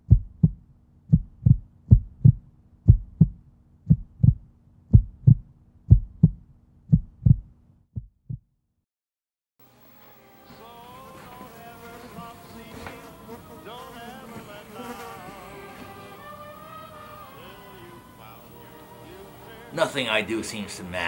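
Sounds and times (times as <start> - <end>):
heartbeat thumps: 0.0 - 8.5
faint steady hum: 9.6 - 21.0.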